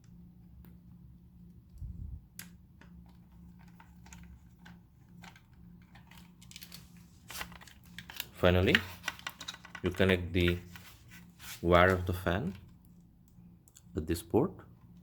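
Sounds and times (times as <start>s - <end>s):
faint low hum: 0.0s - 15.0s
plastic parts clicking together: 2.4s - 10.7s.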